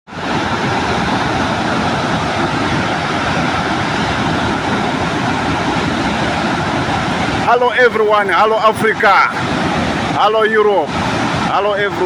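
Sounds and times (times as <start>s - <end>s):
waterfall roaring: 0.1s - 12.0s.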